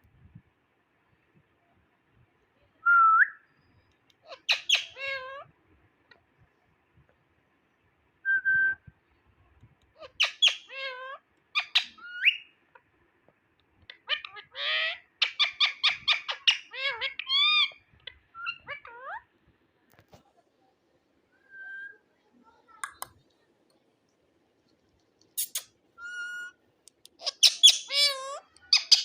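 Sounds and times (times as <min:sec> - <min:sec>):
parakeet squawks: 0:04.2 - 0:05.4, 0:10.0 - 0:12.5, 0:13.9 - 0:19.2, 0:27.2 - 0:29.0
parakeet clicking calls: 0:26.9 - 0:29.0.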